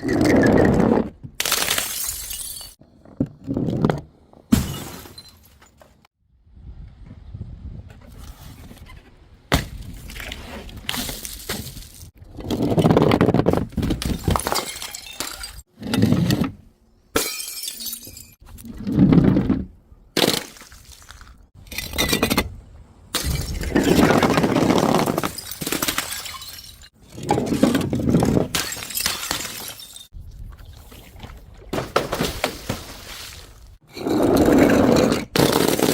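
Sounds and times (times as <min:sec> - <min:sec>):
glass bottles smashing: 0:01.4 - 0:02.8, 0:14.1 - 0:15.7, 0:17.2 - 0:18.4, 0:25.1 - 0:26.9, 0:28.5 - 0:30.1.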